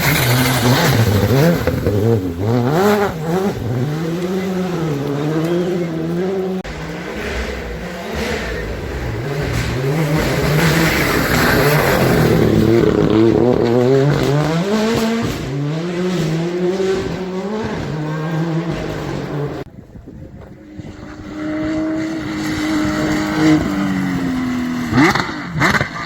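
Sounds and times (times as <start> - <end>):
rally car engine revving: 0.0 - 26.0.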